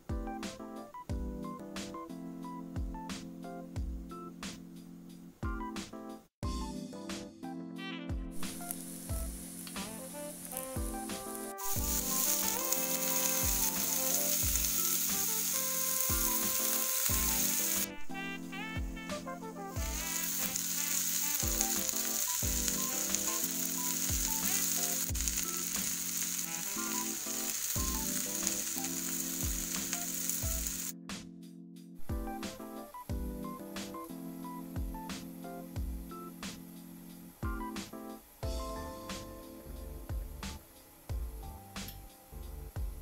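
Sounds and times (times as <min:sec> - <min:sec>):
background music with steady beat: 0:00.0 - 0:43.0
vegetables sizzling in a pan: 0:08.4 - 0:18.0, 0:19.6 - 0:30.9.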